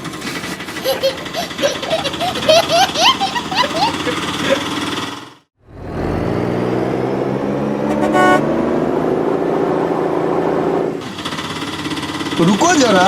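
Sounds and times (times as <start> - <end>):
vehicle engine running: 0.0 - 13.0
short horn honk: 7.9 - 8.5.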